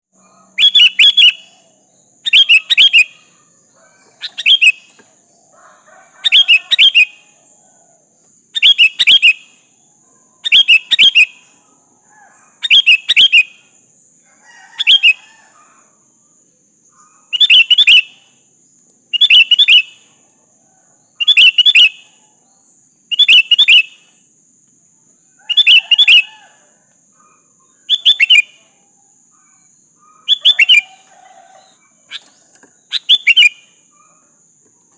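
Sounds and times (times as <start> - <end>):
bird singing bubbly phrases: 0.5 - 5.0, 27.8 - 28.6, 30.0 - 33.7.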